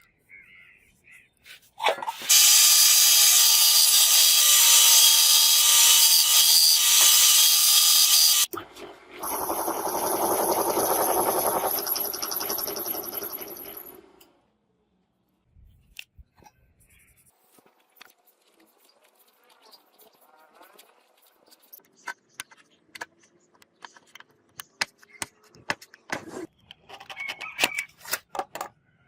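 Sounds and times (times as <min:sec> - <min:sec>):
power tool running: 0:02.2 - 0:08.5, 0:09.2 - 0:14.2.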